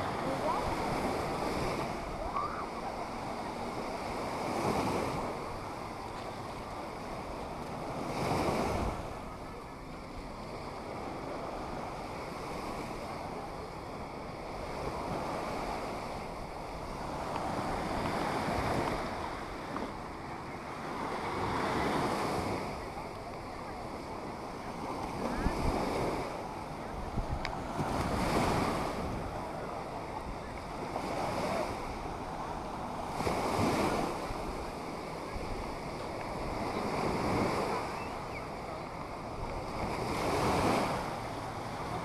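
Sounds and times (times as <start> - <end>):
waves breaking on beach: 0.0 - 42.0
wind on microphone: 21.4 - 42.0.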